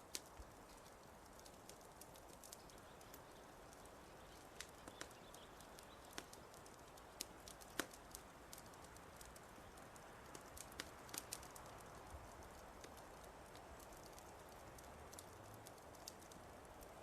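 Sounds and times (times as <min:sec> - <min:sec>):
fire hiss: 0:00.0 - 0:17.0
wood fire crackling: 0:00.0 - 0:17.0.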